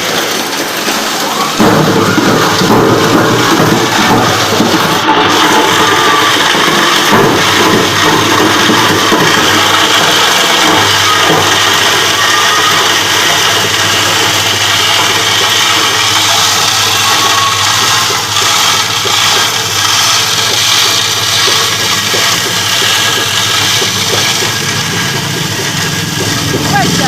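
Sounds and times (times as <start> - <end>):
ice crusher motor hum: 0.0 - 27.0
ice grinding hiss: 0.0 - 27.0.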